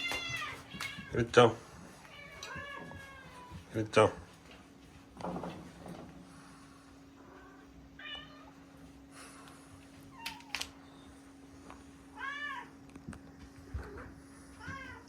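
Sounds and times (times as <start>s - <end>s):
cat meowing: 0.0s - 1.3s, 2.0s - 3.6s, 7.4s - 8.6s, 12.1s - 12.7s.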